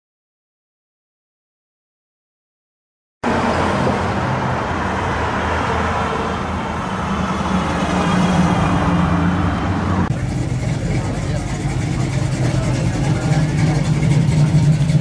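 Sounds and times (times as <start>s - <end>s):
hot rod engine driving past: 3.2s - 15.0s
road traffic noise: 3.2s - 15.0s.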